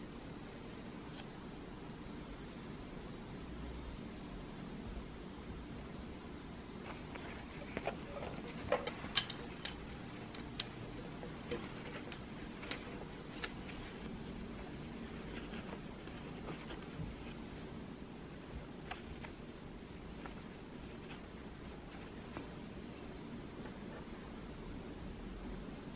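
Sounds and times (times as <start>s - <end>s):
cloth pouch rustling: 6.8s - 23.0s.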